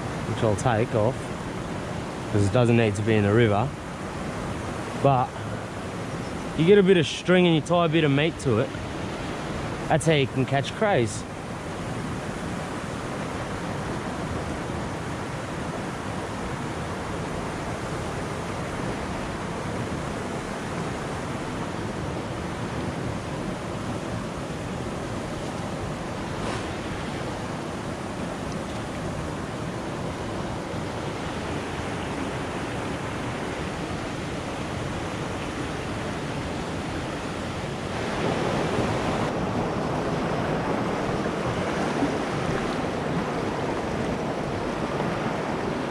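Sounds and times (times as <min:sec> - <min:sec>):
water rushing over rocks: 0:00.0 - 0:45.9.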